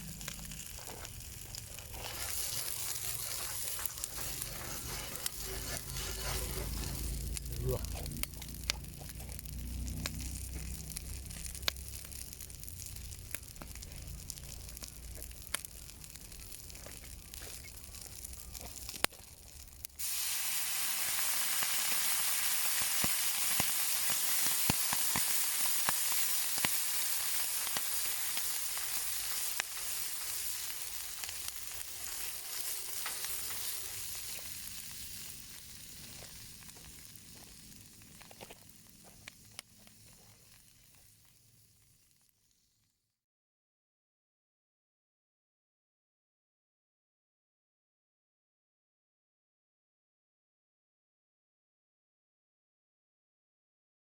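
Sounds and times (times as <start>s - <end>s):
sausages sizzling in a frying pan: 0.0s - 42.9s.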